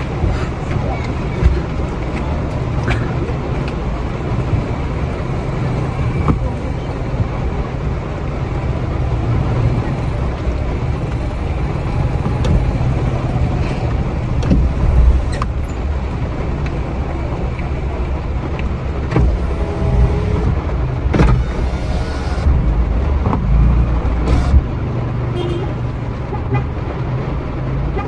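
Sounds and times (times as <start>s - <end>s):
car engine and traffic rumble: 0.0s - 28.0s
sharp clicks and knocks: 13.7s - 16.8s, 18.5s - 24.8s.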